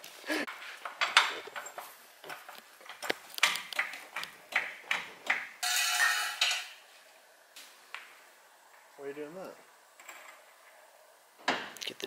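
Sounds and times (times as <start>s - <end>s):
metal tools knocking and clinking: 5.6s - 6.8s.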